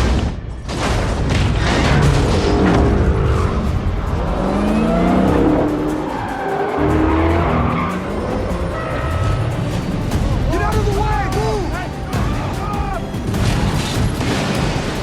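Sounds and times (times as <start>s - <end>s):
dramatic music: 0.0s - 15.0s
car engines revving: 1.7s - 11.0s
tyres skidding: 1.7s - 15.0s.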